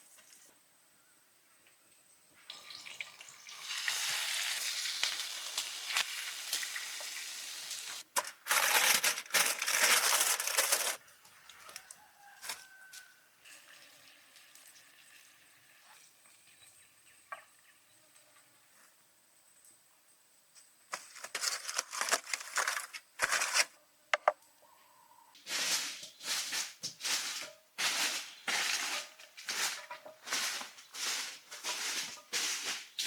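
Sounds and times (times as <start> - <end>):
food sizzling in a hot pan: 2.5 - 8.0.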